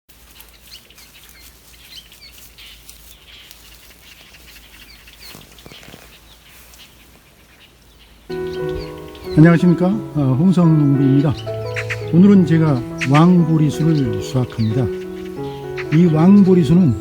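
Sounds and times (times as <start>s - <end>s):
soft rustle: 0.1s - 8.2s
small birds chirping: 0.2s - 17.0s.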